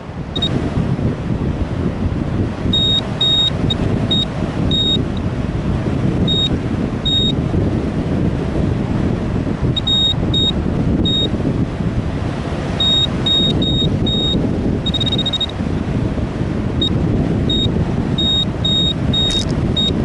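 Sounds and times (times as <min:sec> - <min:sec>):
wind buffeting microphone: 0:00.0 - 0:20.0
short high electronic beeps: 0:02.8 - 0:03.5, 0:12.8 - 0:15.5, 0:17.5 - 0:19.9.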